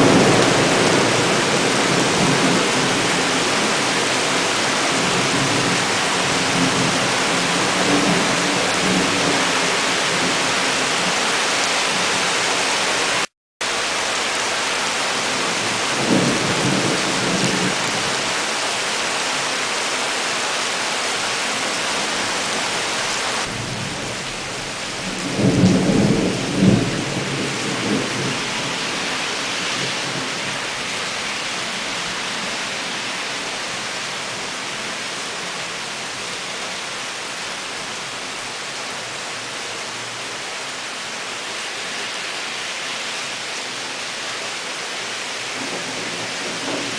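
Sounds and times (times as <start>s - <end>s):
thunder rumbling: 0.0s - 11.2s, 15.2s - 18.3s, 23.4s - 33.8s, 45.6s - 46.9s
torrential rain pouring: 0.0s - 46.9s.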